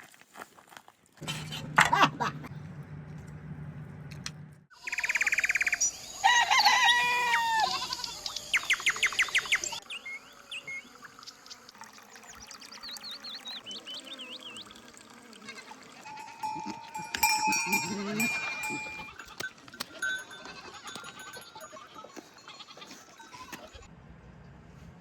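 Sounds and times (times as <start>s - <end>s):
small birds chirping: 4.8s - 6.2s, 7.6s - 15.1s
chickens calling: 4.9s - 11.7s, 15.4s - 23.8s.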